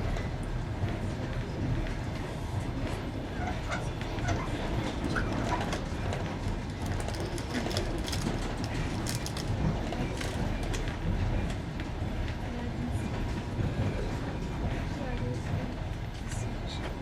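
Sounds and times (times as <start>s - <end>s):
train rumbling: 0.0s - 17.0s
wheels clicking over rail joints: 5.0s - 10.9s.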